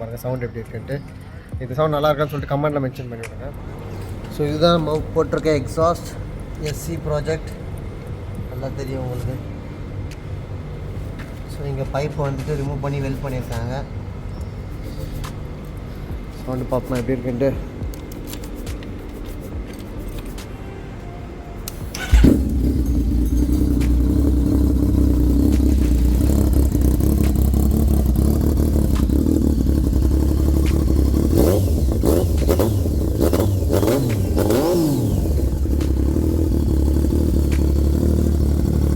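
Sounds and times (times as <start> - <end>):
engine revving in quick blips: 21.7 - 38.9
motorcycle engine idling: 21.7 - 38.9
motorcycle engine starting with bang: 21.9 - 38.9.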